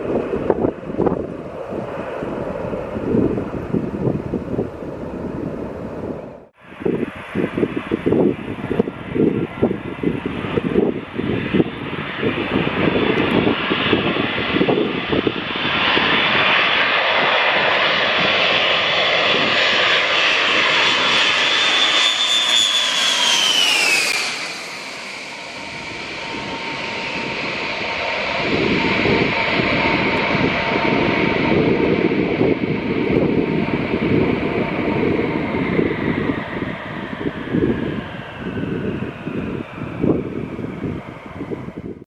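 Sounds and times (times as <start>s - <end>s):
wind buffeting microphone: 0.0s - 22.1s, 22.7s - 42.0s
jet engines roaring past: 0.0s - 42.0s
high engine whine falling in pitch: 19.8s - 27.5s.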